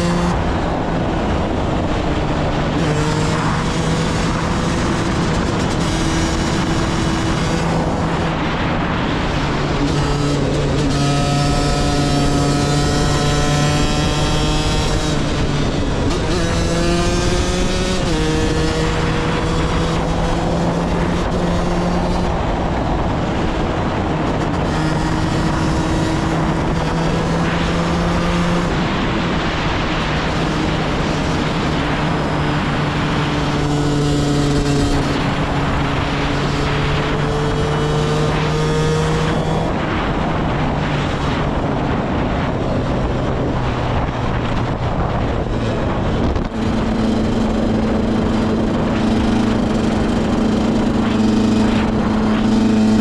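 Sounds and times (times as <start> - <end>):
constant rushing noise: 0.0 - 53.0
dirt bike engine running: 43.2 - 53.0.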